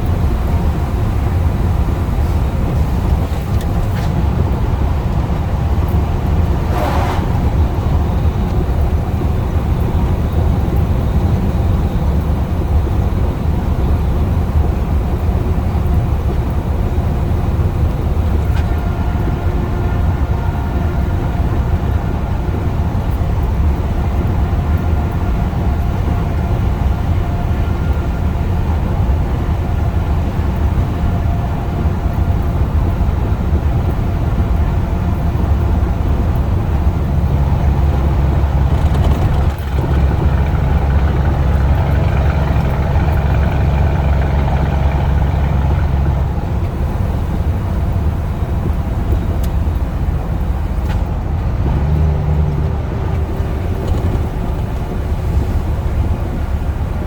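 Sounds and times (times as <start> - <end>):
road noise: 0.0 - 57.0
truck diesel engine droning: 0.0 - 57.0.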